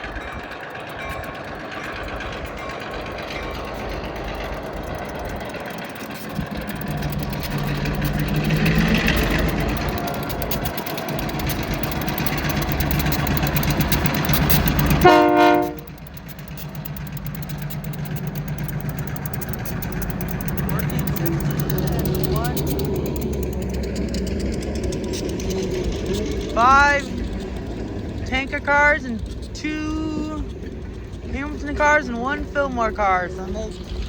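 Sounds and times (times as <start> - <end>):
diesel locomotive engine: 0.0 - 34.0
train horn toot: 14.8 - 16.0.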